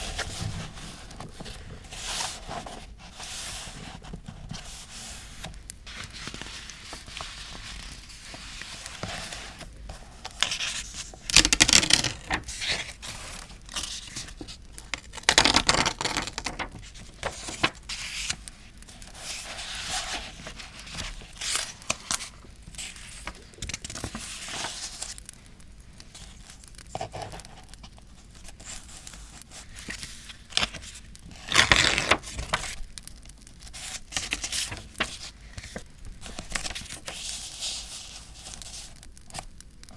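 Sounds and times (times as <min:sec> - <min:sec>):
paper rustling and tearing: 0:00.0 - 0:25.2, 0:28.4 - 0:32.8.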